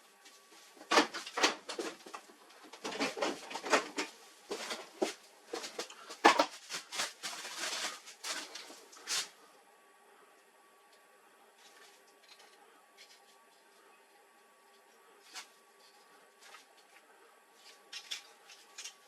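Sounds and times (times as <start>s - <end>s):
plastic and metal parts clicking: 17.9s - 19.0s.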